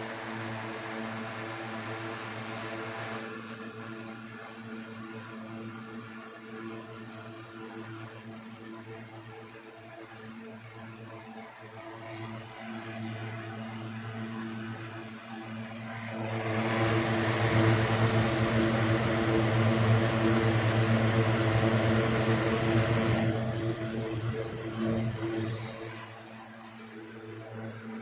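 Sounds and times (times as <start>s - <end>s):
electric fan motor hum: 0.0s - 3.9s, 15.6s - 28.0s
air rushing through fan blades: 15.9s - 26.2s.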